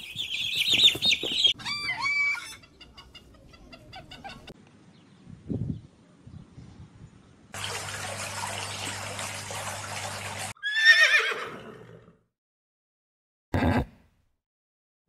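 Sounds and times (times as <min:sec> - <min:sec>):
horse whinnying: 0:10.6 - 0:12.2, 0:13.6 - 0:14.0.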